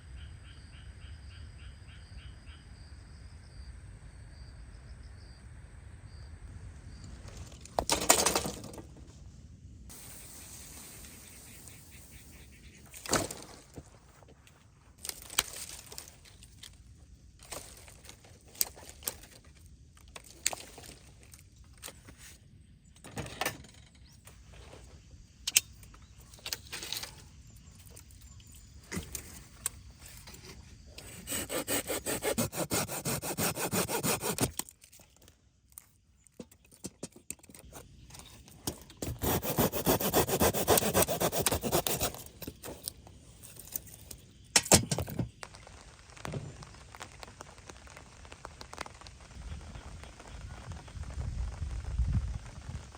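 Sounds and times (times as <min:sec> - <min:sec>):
hand saw cutting wood: 0:31.0 - 0:34.6, 0:39.0 - 0:42.3.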